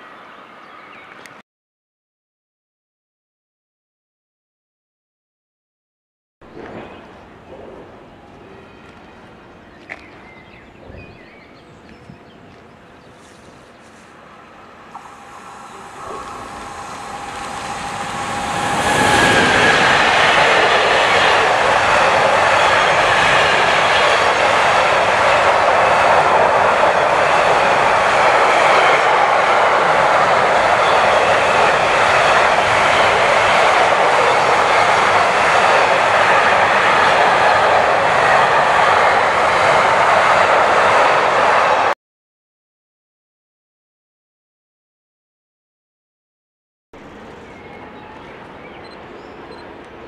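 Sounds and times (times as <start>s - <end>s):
train passing on rails: 6.5s - 42.0s, 47.0s - 50.0s.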